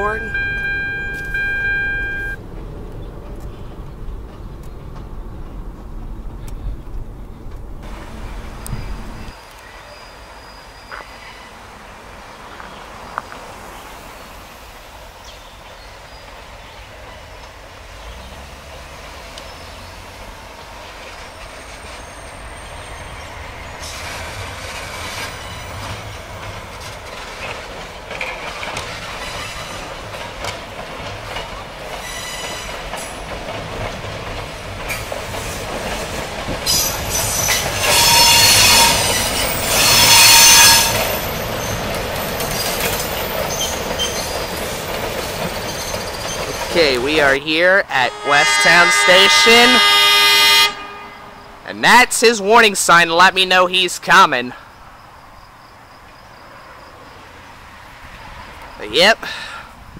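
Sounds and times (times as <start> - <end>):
train wheels squealing on rails: 0.0 - 2.4, 8.6 - 11.7, 20.8 - 30.5, 31.1 - 33.4, 34.8 - 47.2, 48.1 - 51.6.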